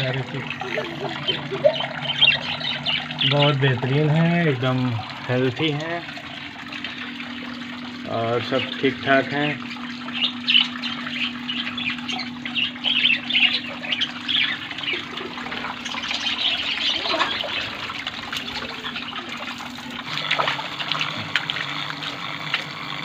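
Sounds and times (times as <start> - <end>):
water trickling: 0.0 - 23.0
budgerigars chattering and chirping: 1.3 - 3.5, 10.1 - 17.8.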